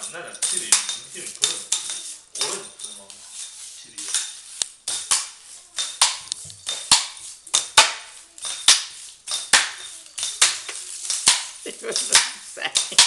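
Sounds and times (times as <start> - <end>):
hard objects clattering: 0.0 - 13.0.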